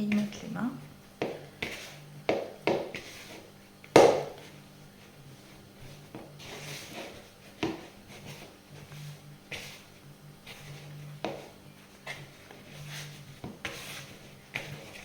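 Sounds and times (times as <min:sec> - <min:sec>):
dough rubbing: 0:00.0 - 0:15.0
dough thumping on worktop: 0:01.2 - 0:03.1, 0:03.9 - 0:04.5, 0:11.2 - 0:11.5.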